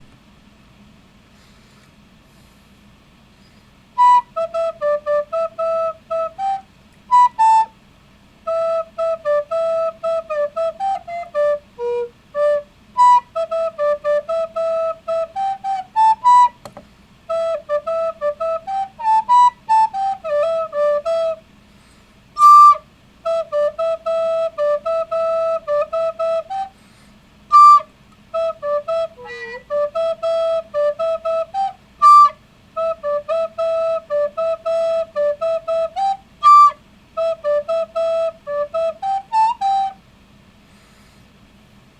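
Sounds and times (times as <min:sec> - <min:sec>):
recorder playing pop melody: 0:04.0 - 0:07.7, 0:08.5 - 0:16.7, 0:17.3 - 0:21.4, 0:22.4 - 0:26.7, 0:27.5 - 0:40.0.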